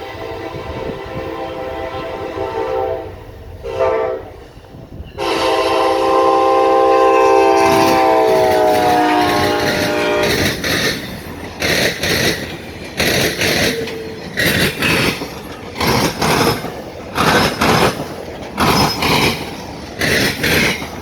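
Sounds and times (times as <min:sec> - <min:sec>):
locomotive air horn blasts: 0:00.0 - 0:04.4, 0:05.2 - 0:10.6
passing train rumble: 0:00.0 - 0:21.0.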